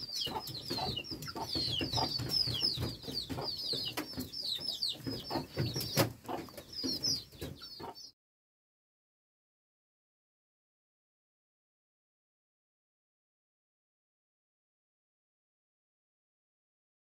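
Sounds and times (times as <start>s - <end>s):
chickens clucking: 0.0s - 8.1s
chicks peeping: 0.0s - 8.1s.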